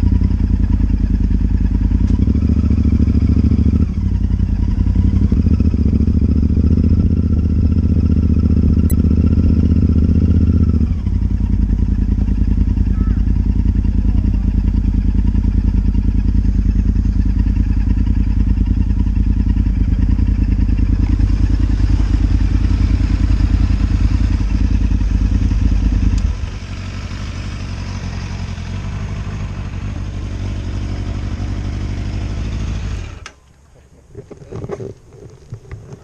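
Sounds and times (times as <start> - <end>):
motorcycle engine running: 0.0 - 33.4.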